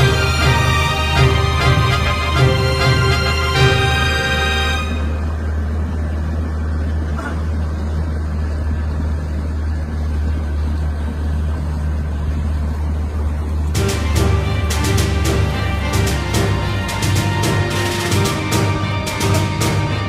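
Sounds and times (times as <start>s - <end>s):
background music: 0.0s - 5.2s, 13.8s - 20.0s.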